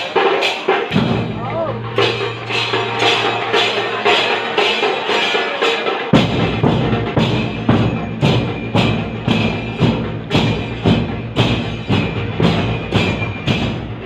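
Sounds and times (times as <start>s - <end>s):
deep low sound: 0.9s - 4.6s.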